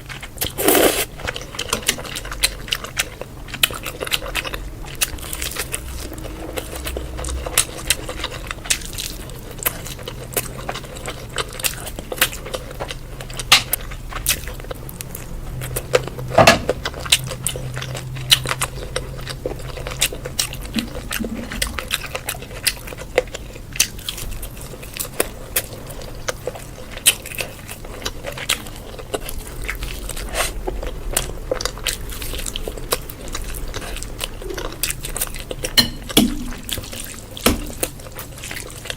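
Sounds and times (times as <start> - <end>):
person chewing and biting food: 0.0 - 38.9.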